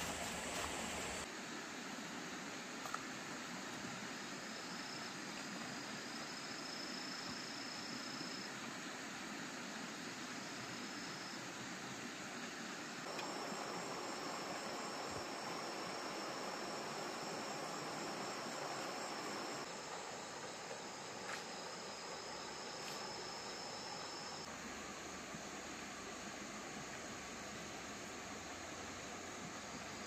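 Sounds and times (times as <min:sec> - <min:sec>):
dense hiss: 0:00.0 - 0:30.0
crickets trilling: 0:12.4 - 0:30.0.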